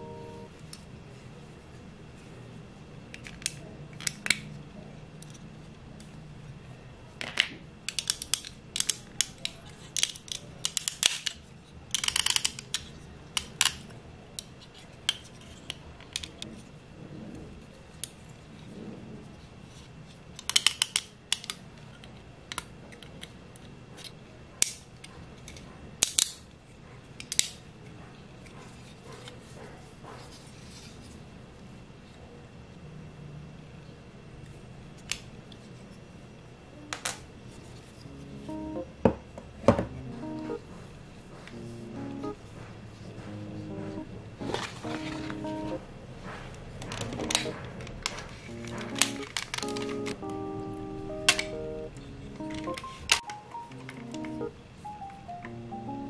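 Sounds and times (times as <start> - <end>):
plastic toy parts clicking: 7.2 - 14.5, 15.1 - 16.5, 20.4 - 24.8, 25.5 - 26.4, 46.8 - 50.2.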